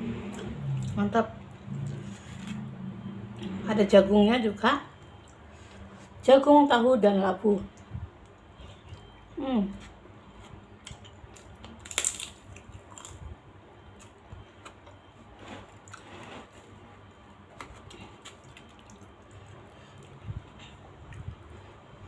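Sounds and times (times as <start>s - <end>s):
crackers crunching: 10.8s - 13.2s
wet chewing: 17.5s - 21.4s.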